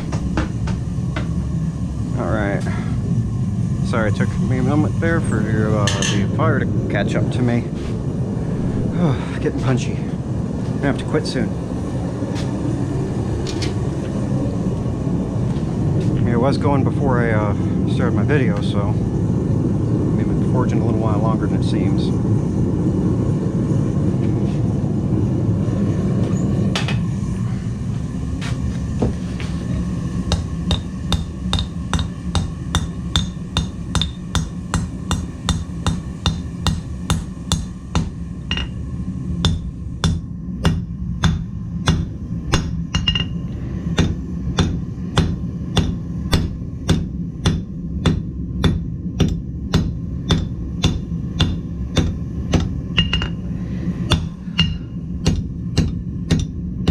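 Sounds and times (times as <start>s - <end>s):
forge fire rushing: 0.0s - 47.4s
hammer striking steel on anvil: 5.8s - 6.3s, 30.2s - 38.8s, 39.4s - 53.4s, 54.1s - 56.9s.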